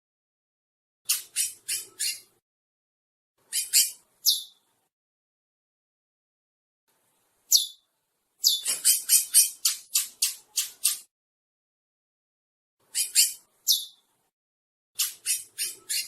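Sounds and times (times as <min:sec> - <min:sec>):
finch singing: 0:01.1 - 0:02.4, 0:03.5 - 0:04.6, 0:07.5 - 0:07.8, 0:08.4 - 0:11.1, 0:12.9 - 0:14.1, 0:15.0 - 0:16.0.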